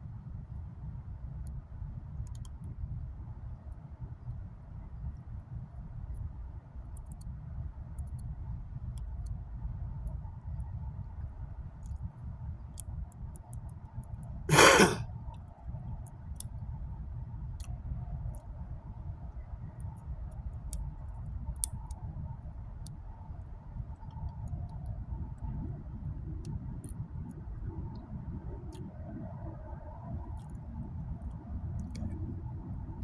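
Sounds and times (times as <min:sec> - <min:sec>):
person sighing: 0:14.5 - 0:15.0.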